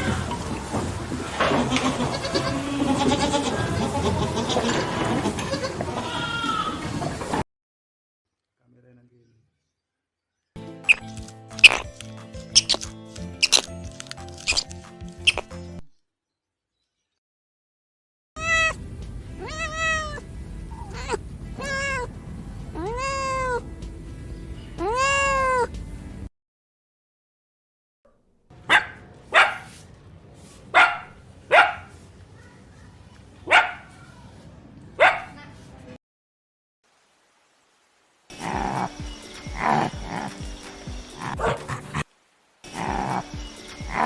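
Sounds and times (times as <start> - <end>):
cat meowing: 18.4 - 18.8, 19.4 - 22.1, 22.8 - 23.6, 24.8 - 25.7.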